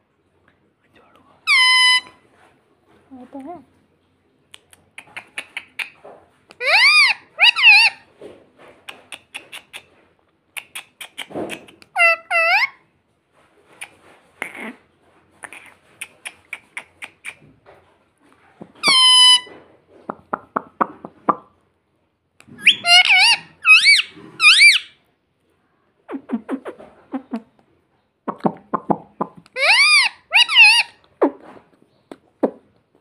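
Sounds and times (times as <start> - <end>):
parrot shrill call: 1.5 - 2.2, 6.6 - 8.0, 12.0 - 12.8, 18.8 - 19.5, 22.6 - 25.0, 29.6 - 31.0
parrot squawks: 1.5 - 2.2, 6.6 - 8.0, 11.1 - 12.8, 18.6 - 19.5, 22.5 - 25.0, 29.5 - 31.0
parrot clicking chatter: 4.6 - 6.0, 6.6 - 8.0, 8.9 - 9.9, 10.6 - 12.7, 15.4 - 17.4, 18.6 - 19.5, 22.4 - 24.9, 28.3 - 31.0.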